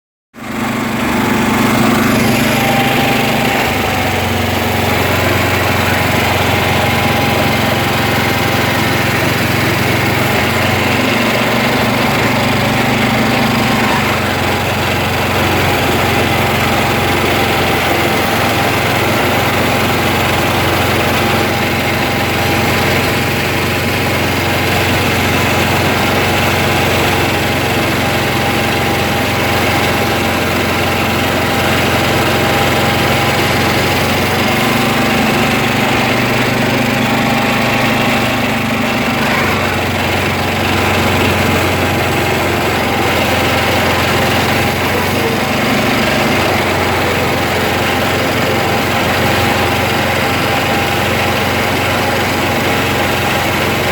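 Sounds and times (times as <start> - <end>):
engine running with whine: 0.4 - 53.9.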